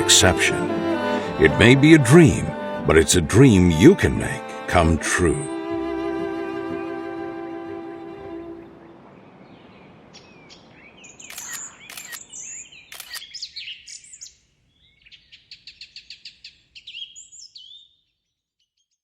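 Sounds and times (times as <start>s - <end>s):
small birds chirping: 8.6s - 19.0s
sharp clicks: 11.3s - 12.3s, 12.9s - 13.2s.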